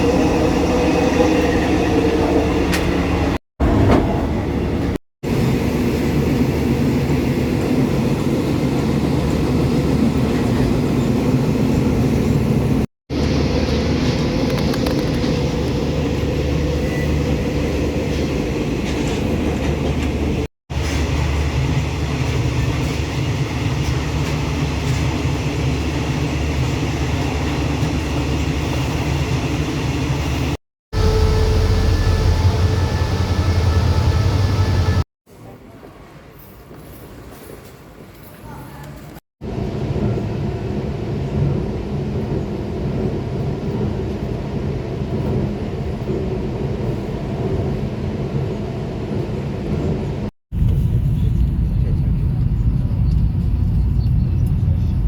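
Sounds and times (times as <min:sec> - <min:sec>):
train wheels rumbling: 0:00.0 - 0:35.0
low engine drone: 0:29.5 - 0:35.0.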